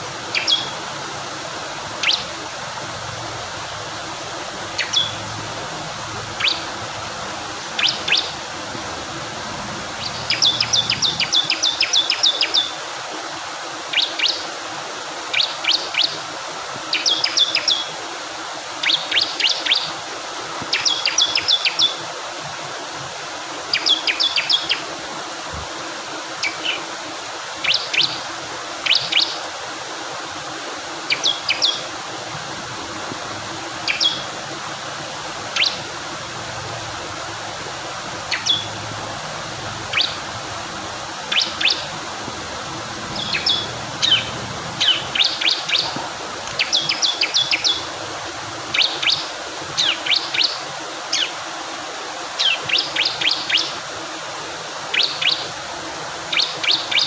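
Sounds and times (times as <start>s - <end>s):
rushing water: 0.0s - 57.0s
bird singing high trills: 0.3s - 0.8s, 2.0s - 2.3s, 4.7s - 5.4s, 6.3s - 6.8s, 7.7s - 8.4s, 9.6s - 12.8s, 33.8s - 34.3s, 35.5s - 35.8s, 38.2s - 38.8s, 39.9s - 40.3s, 41.3s - 41.9s, 43.1s - 45.9s, 46.6s - 47.9s.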